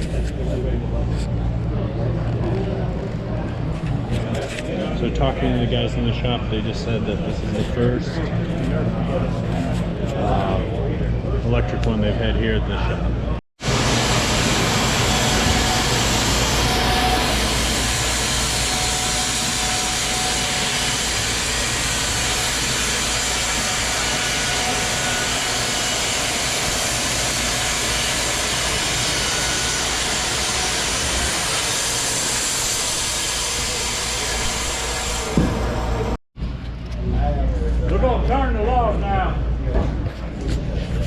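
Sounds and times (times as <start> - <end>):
band sawmill cutting a log: 13.6 - 36.2.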